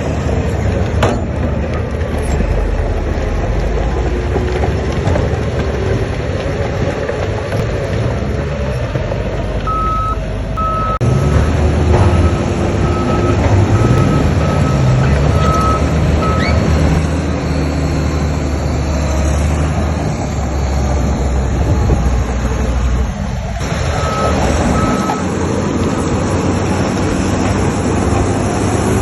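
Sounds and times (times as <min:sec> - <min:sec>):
diesel construction machinery running: 0:00.0 - 0:29.0
reversing alarm beeping: 0:09.7 - 0:11.0, 0:12.1 - 0:17.0, 0:23.9 - 0:26.2.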